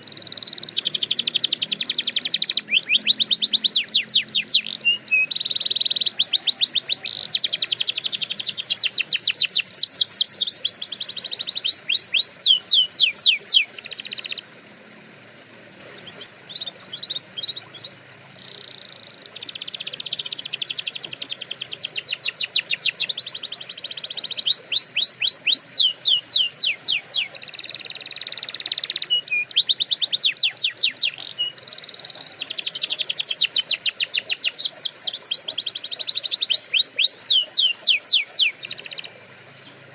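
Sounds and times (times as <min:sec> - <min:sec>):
canary singing trills: 0:00.0 - 0:15.0, 0:15.8 - 0:39.9.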